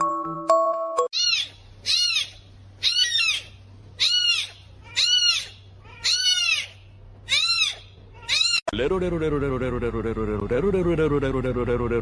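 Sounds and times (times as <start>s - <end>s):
animal calling high cries: 1.1s - 8.7s.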